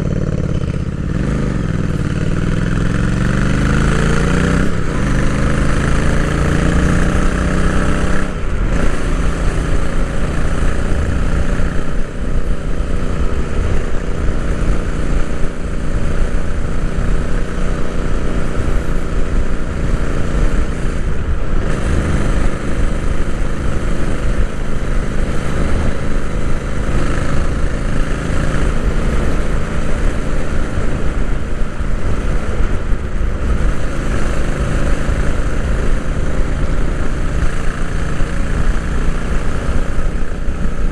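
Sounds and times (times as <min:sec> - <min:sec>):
motorcycle engine while riding: 0:00.0 - 0:40.9
wind noise on microphone: 0:00.0 - 0:40.9.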